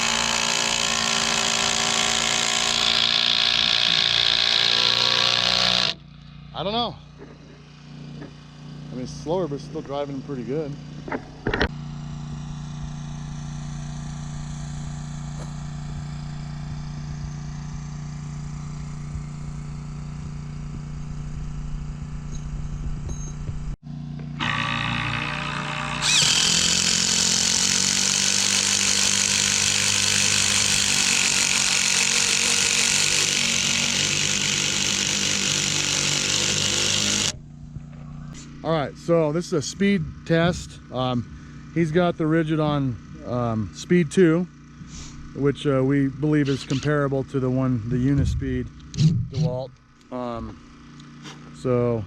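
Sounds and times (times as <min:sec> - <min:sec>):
impact drivers hammering screws: 0:00.0 - 0:06.0, 0:24.4 - 0:37.4
steady low engine hum: 0:00.0 - 0:52.0.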